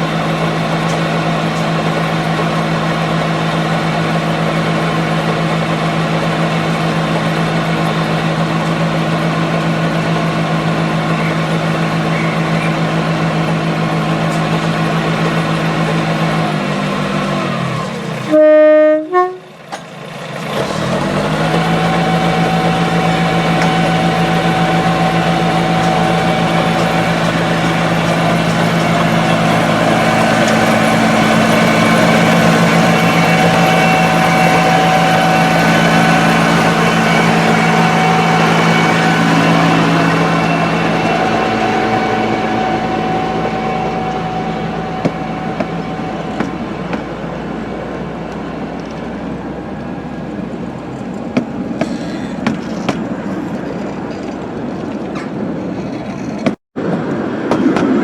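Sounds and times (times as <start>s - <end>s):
miniature train hum: 0.0s - 56.6s
rail clicks: 0.0s - 58.0s.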